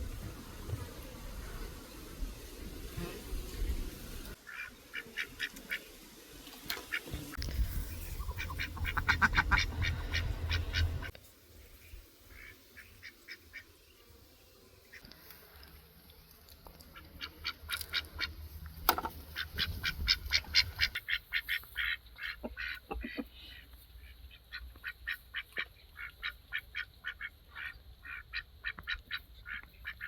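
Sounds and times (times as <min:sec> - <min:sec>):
fowl calling: 0:04.4 - 0:05.9, 0:08.0 - 0:11.1.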